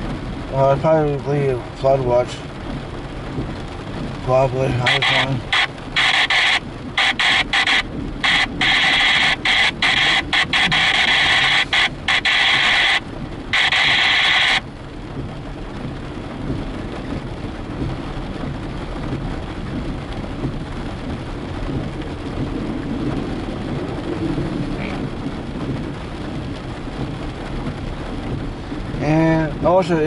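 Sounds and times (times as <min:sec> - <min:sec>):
rain on a car: 0:00.0 - 0:30.0
scanner radio static hissing: 0:04.7 - 0:14.7.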